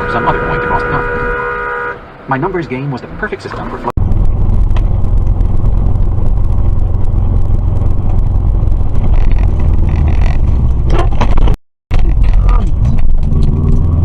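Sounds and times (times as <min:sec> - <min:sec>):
car road rumble: 0:00.0 - 0:14.0.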